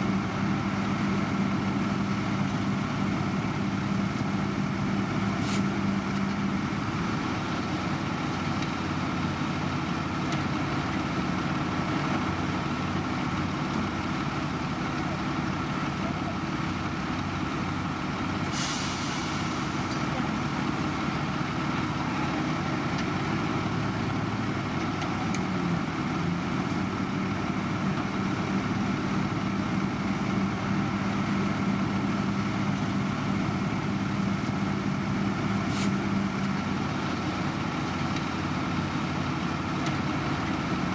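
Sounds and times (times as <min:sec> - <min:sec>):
heavy machine engine running: 0:00.0 - 0:40.9
air hissing: 0:18.5 - 0:19.8.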